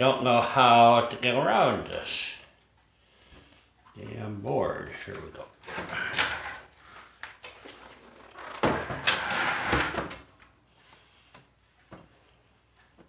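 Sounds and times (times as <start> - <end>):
plastic scraping and knocking: 7.5 - 10.3.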